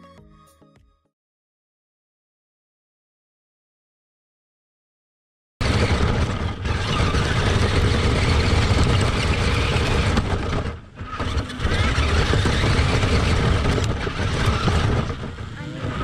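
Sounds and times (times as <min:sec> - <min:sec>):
rc truck drivetrain rumble: 0:05.6 - 0:16.0.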